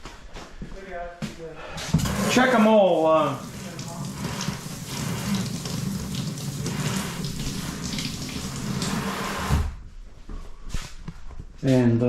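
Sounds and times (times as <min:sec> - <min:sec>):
water running from faucet: 0:02.0 - 0:09.7.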